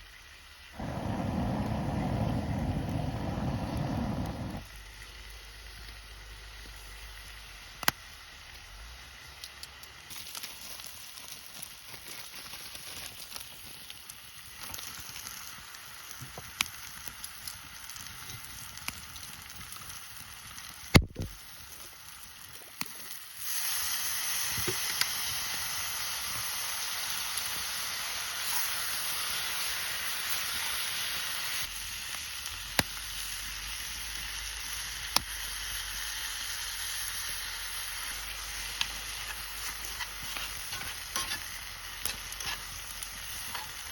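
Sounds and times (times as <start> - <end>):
food sizzling in a pan: 0.0 - 43.9
crackles and pops: 0.8 - 7.1, 7.7 - 8.1, 9.4 - 23.4, 31.6 - 43.9.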